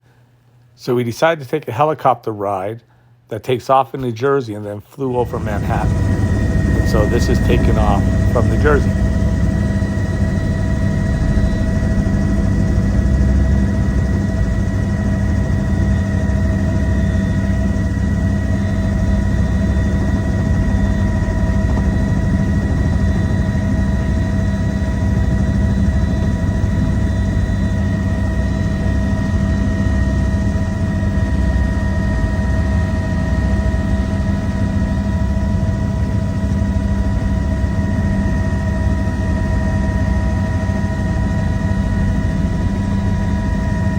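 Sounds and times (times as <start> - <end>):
high whining tones: 5.1 - 32.5
helicopter engine and rotor: 5.2 - 43.9.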